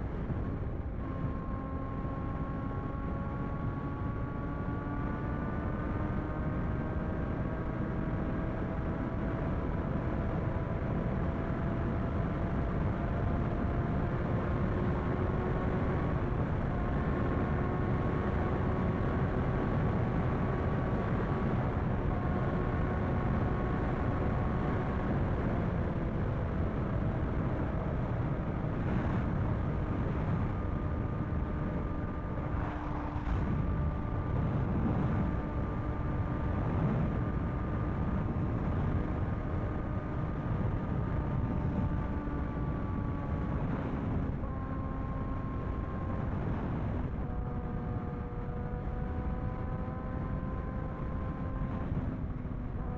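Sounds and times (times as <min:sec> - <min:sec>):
motorcycle engine cruising: 0:00.0 - 0:52.9
heavy rushing noise: 0:32.1 - 0:35.4.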